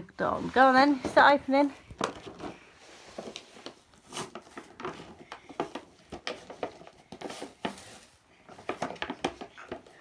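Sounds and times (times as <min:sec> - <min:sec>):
packaging crinkling and rustling: 0:01.9 - 0:09.2.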